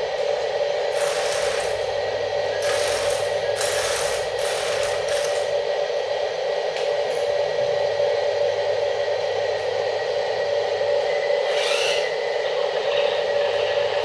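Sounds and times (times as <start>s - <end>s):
small electric motor whining: 11.1s - 14.0s.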